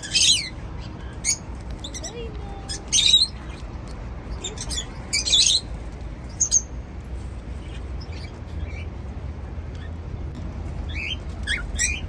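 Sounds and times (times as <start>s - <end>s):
cockatiels chirping: 0.0s - 6.8s, 7.6s - 8.9s, 10.9s - 12.0s
steady low hum: 0.0s - 12.0s.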